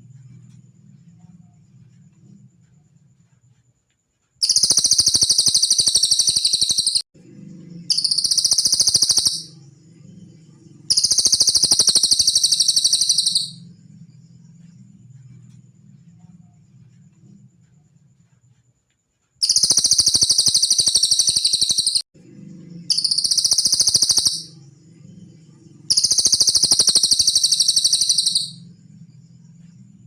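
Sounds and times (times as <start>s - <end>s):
songbird high-pitched trills: 4.4s - 7.0s, 7.8s - 9.6s, 10.4s - 13.8s, 19.4s - 22.0s, 22.8s - 28.8s.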